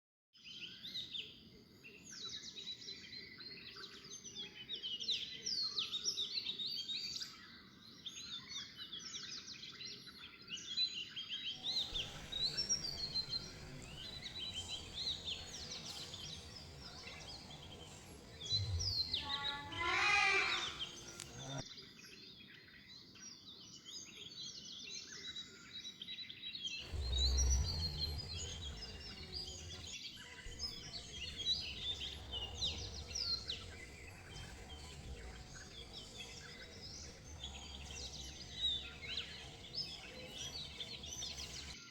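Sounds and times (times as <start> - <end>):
small birds chirping: 11.5 - 21.6, 26.8 - 41.9
louder bird call: 11.6 - 21.6.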